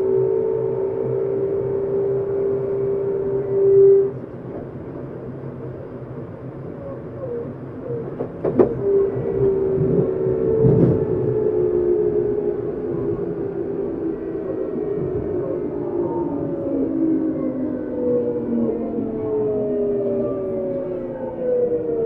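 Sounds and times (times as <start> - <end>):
train low rumble: 0.0 - 22.0.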